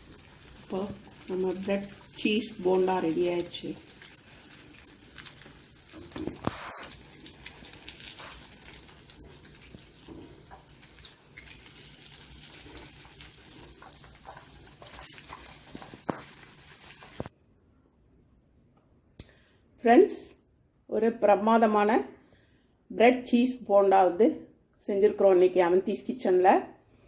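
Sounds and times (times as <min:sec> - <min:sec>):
food sizzling in hot oil: 0:00.0 - 0:17.3.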